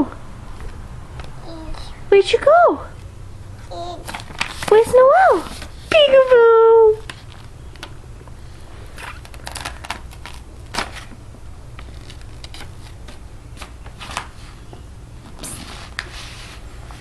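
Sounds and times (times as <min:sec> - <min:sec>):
low steady hum: 0:00.0 - 0:17.0
objects rustling and clicking: 0:04.0 - 0:06.3, 0:08.9 - 0:14.6.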